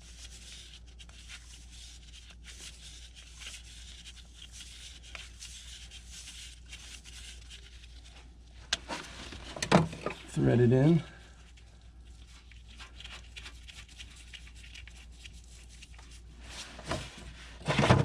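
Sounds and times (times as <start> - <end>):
tape rubbing and crinkling: 0.0 - 10.4, 11.4 - 17.7
steady low hum: 8.0 - 12.7.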